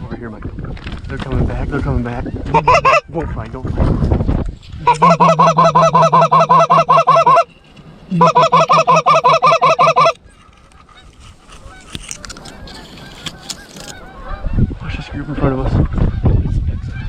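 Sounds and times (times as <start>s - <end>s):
goose call clucking honks: 2.5s - 3.1s, 4.8s - 7.5s, 8.1s - 10.2s.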